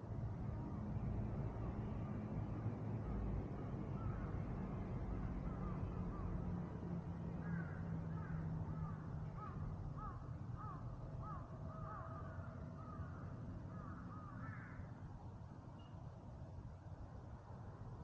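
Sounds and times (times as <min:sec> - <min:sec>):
crows cawing: 0:07.4 - 0:14.9.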